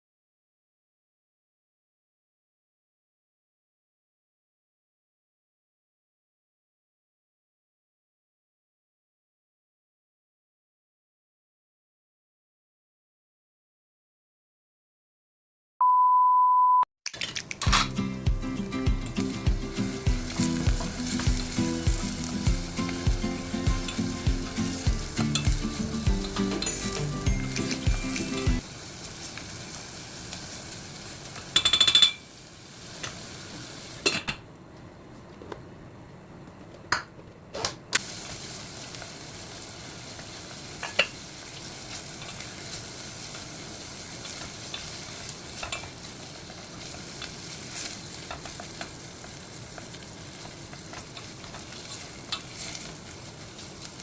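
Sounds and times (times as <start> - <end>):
chicken sizzling in a pan: 17.7 - 34.2, 38.0 - 54.0.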